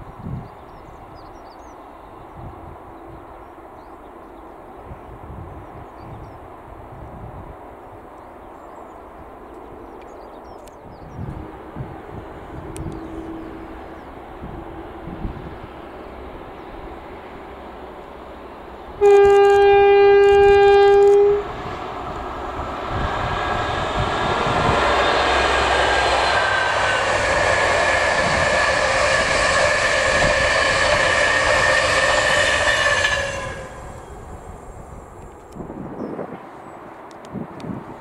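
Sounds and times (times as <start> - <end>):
train passing at speed: 0.0 - 38.0
train horn: 19.0 - 21.6, 23.7 - 34.4.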